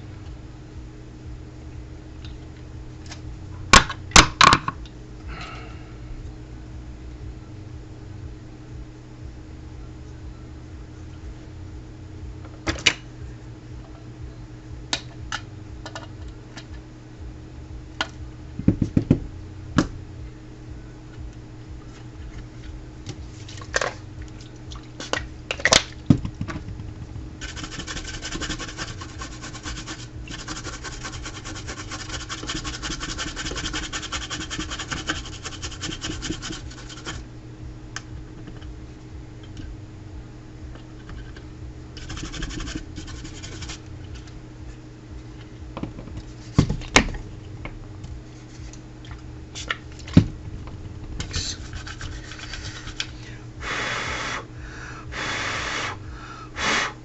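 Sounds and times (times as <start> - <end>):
steady low hum: 0.0 - 57.0
scratching and scrubbing on board: 27.4 - 37.2, 42.0 - 43.8, 51.2 - 53.1.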